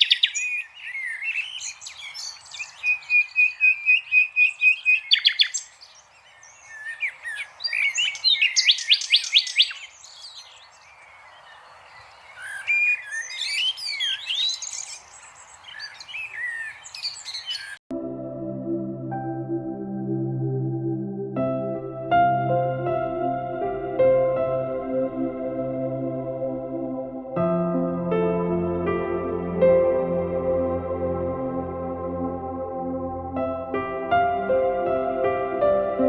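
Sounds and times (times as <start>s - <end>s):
birds chirping and trilling: 0.0s - 17.8s
soft background music: 17.9s - 36.0s.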